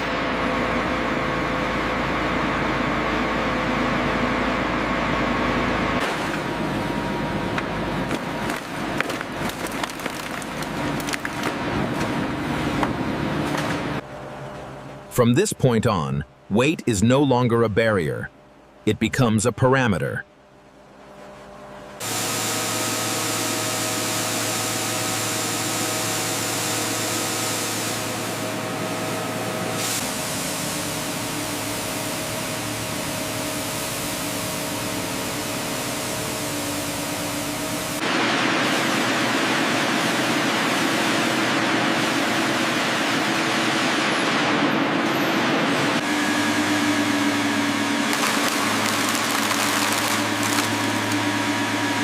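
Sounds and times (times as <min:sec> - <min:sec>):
industrial machinery hiss and hum: 0:20.8 - 0:52.0.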